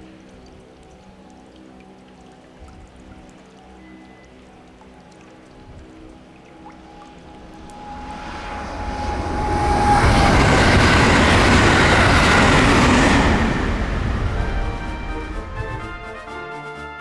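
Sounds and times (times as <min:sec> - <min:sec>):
train passing at speed: 0:06.8 - 0:16.2.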